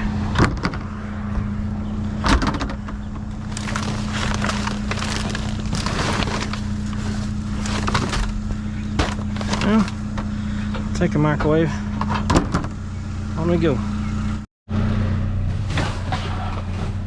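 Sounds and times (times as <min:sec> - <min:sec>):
vehicle engine idling: 0:00.0 - 0:15.7
rustling and clattering: 0:02.2 - 0:10.3.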